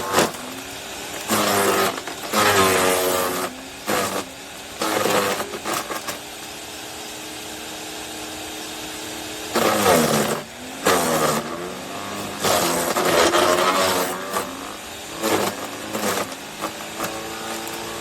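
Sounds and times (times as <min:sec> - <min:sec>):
wood chipper shredding: 0:00.0 - 0:18.0.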